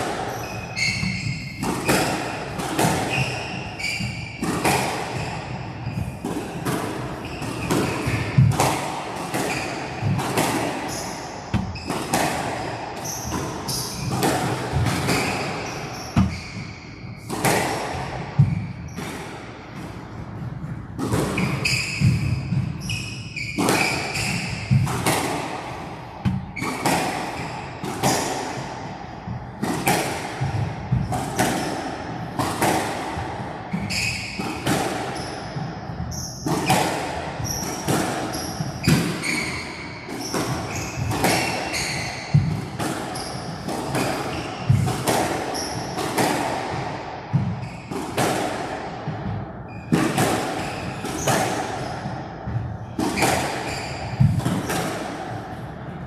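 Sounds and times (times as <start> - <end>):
squash ball hitting rackets and walls: 0.0 - 56.0
shoes squeaking on wooden floor: 0.3 - 1.5, 15.0 - 17.2, 38.3 - 41.1, 41.7 - 42.2, 53.2 - 54.4.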